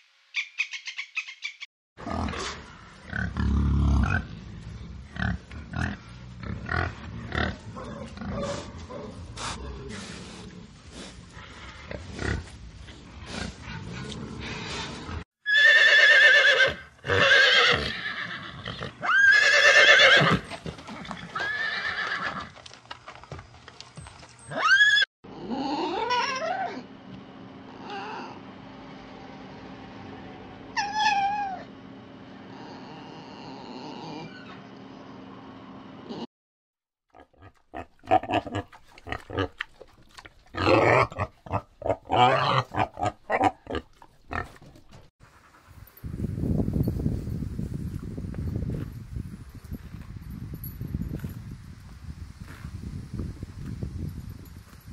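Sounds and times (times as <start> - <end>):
horses whinnying: 15.5 - 22.6, 24.4 - 26.8.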